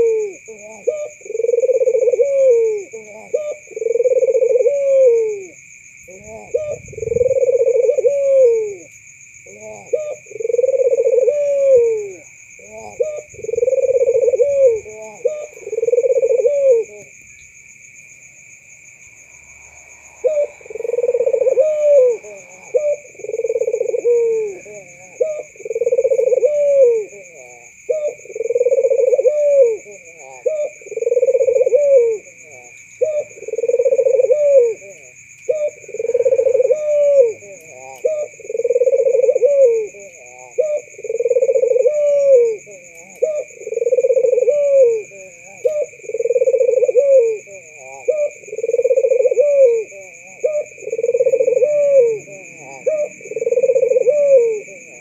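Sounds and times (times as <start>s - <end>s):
dove cooing: 0.0s - 17.3s, 18.9s - 55.0s.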